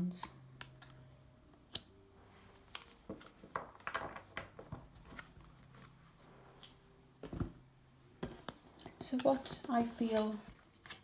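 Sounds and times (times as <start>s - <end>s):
cards slapping and rustling: 2.5s - 6.0s, 8.3s - 11.0s.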